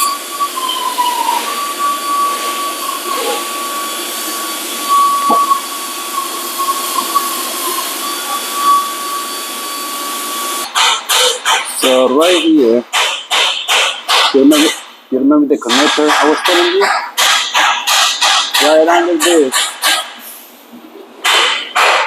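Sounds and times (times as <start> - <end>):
motor hiss with high whine: 0.0 - 10.7.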